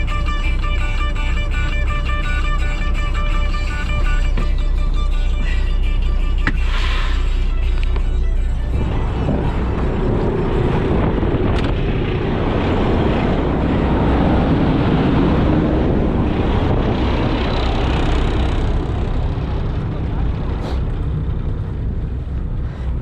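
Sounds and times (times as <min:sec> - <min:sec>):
motor vehicle running: 0:00.0 - 0:23.0
wind on microphone: 0:06.5 - 0:23.0.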